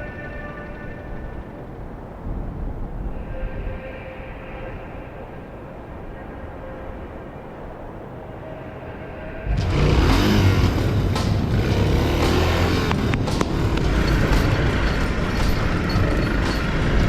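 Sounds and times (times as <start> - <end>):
wind rushing: 0.0 - 17.0
motorcycle engine running: 9.4 - 17.0.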